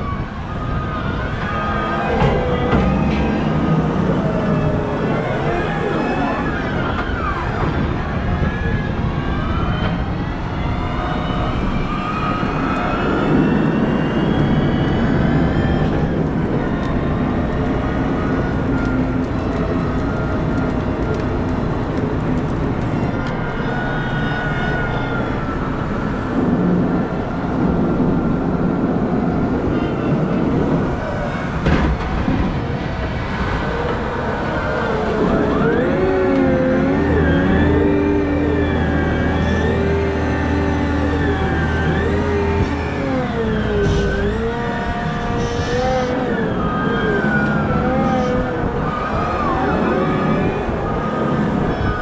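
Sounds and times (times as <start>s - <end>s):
wheel loader diesel engine rumble: 0.0s - 10.2s, 10.9s - 52.0s.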